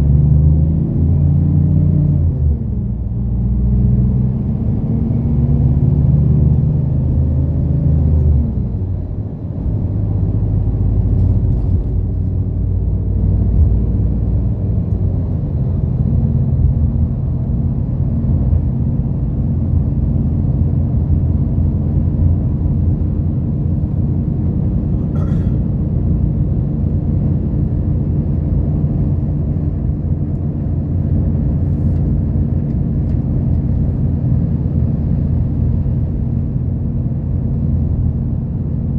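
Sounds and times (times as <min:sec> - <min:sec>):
bus diesel engine drone: 0:00.0 - 0:38.9
road rumble: 0:00.0 - 0:38.9.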